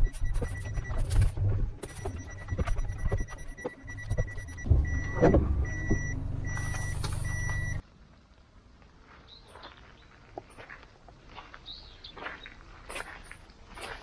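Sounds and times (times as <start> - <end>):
car engine running: 0.0 - 7.8
reversing beeper: 0.0 - 7.8.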